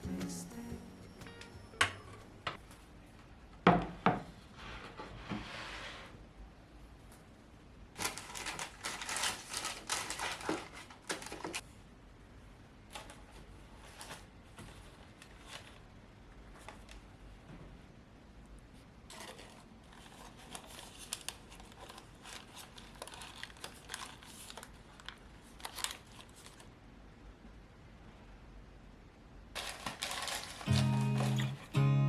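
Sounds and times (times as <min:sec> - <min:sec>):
clattering and rustling: 0:29.6 - 0:31.7.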